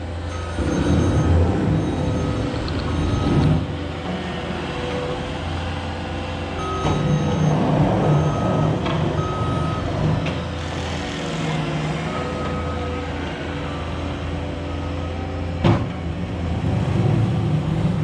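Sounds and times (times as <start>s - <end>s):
heavy engine humming: 0.0s - 18.0s
reversing alarm beeps: 0.3s - 3.8s, 6.4s - 10.4s, 12.1s - 15.3s.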